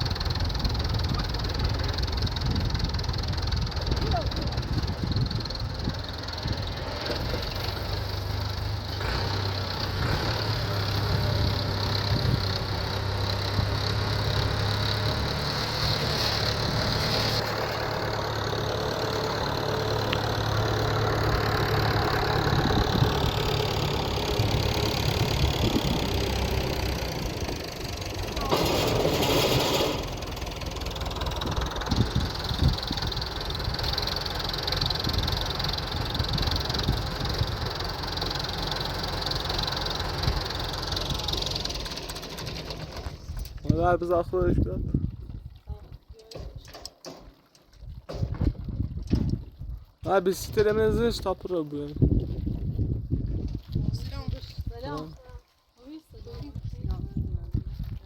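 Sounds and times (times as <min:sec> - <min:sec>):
tractor engine running: 0:00.0 - 0:44.1.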